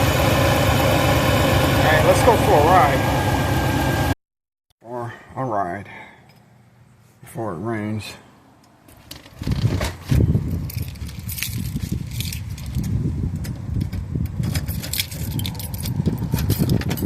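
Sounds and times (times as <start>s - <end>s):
van engine rumbling: 0.0s - 4.2s, 8.8s - 17.0s
light clicks and rattles: 8.9s - 17.0s.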